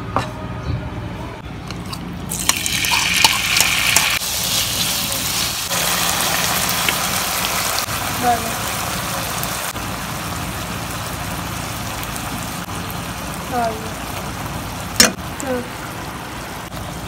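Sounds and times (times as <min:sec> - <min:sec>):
chicken sizzling in hot oil: 0:02.3 - 0:15.2.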